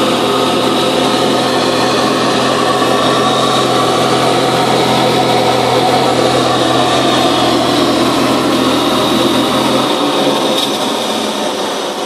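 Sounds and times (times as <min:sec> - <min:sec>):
turbocharged car engine idling: 0:00.0 - 0:12.0.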